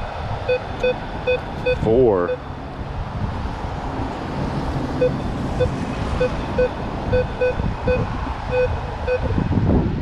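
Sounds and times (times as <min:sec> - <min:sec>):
wind rumble on microphone: 0:00.0 - 0:10.0
metal detector low beeps: 0:00.5 - 0:02.5, 0:05.0 - 0:09.4.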